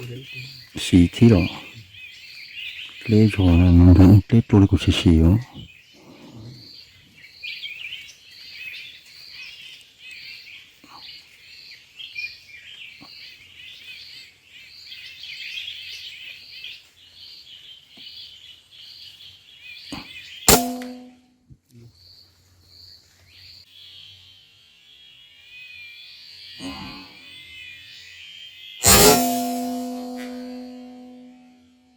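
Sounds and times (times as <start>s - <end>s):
birds calling and chirping: 0.0s - 21.2s, 21.8s - 31.2s
air rifle shot: 20.5s - 21.1s, 28.8s - 31.2s.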